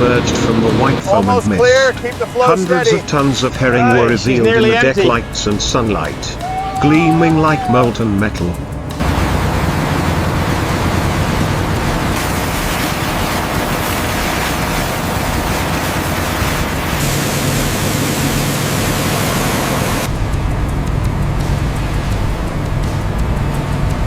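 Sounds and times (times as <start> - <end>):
low engine drone: 7.8 - 24.0
rushing churning water: 8.3 - 23.7.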